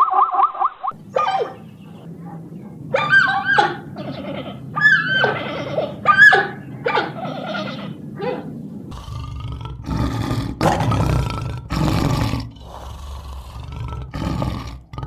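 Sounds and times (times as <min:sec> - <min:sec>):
dog barking and yelping: 0:00.9 - 0:08.9
steady low hum: 0:00.9 - 0:09.0
small squeaks: 0:01.1 - 0:08.7.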